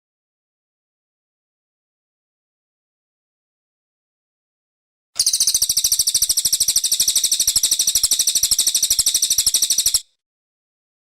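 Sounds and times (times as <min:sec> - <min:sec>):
bird trilling high chirps: 0:05.2 - 0:10.0.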